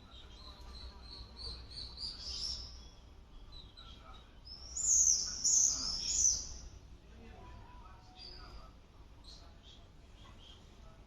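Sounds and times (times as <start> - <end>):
bird chirping: 0.0 - 6.7.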